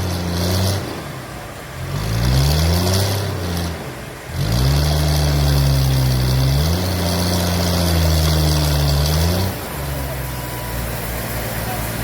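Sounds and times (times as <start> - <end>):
sawmill engine running: 4.9 - 12.0.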